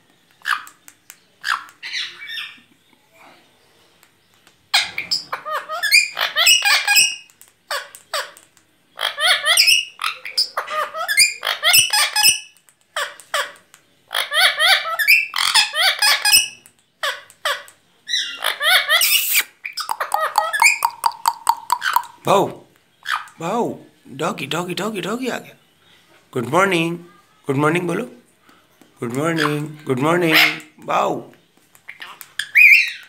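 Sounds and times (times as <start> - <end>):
parrot squawking: 1.4 - 2.7, 4.7 - 8.4, 9.0 - 22.3, 23.0 - 23.4, 29.3 - 30.8, 31.9 - 33.0.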